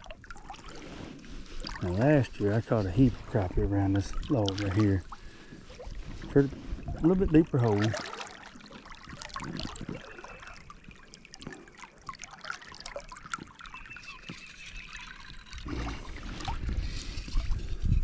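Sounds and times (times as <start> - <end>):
small ticks and splashes: 0.0 - 17.9
creek water trickling: 0.0 - 18.0.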